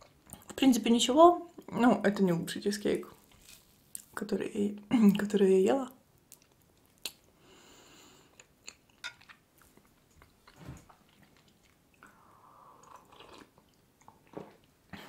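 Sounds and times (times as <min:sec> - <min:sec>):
quiet chewing: 0:03.0 - 0:04.2, 0:06.2 - 0:07.4, 0:08.0 - 0:15.0
soft wet mouth clicks: 0:06.3 - 0:07.3
sip of tea: 0:12.0 - 0:13.5.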